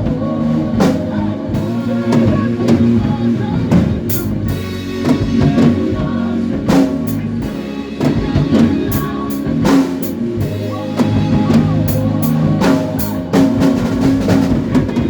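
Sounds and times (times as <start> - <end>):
band playing gospel music: 0.0 - 15.0
sustained bass notes: 0.0 - 15.0.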